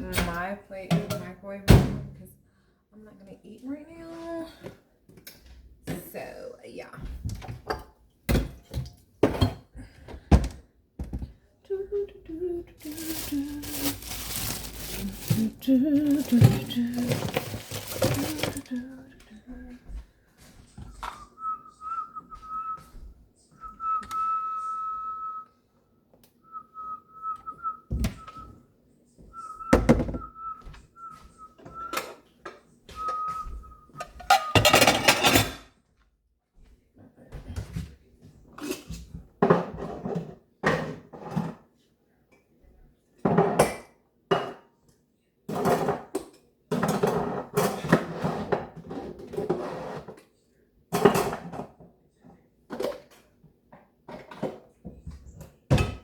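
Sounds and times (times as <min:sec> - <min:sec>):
dishes and pans clattering: 0:07.5 - 0:09.7, 0:12.9 - 0:18.7, 0:34.0 - 0:35.7, 0:38.6 - 0:41.7, 0:43.2 - 0:44.7, 0:45.5 - 0:50.2, 0:50.9 - 0:51.8, 0:55.7 - 0:56.0.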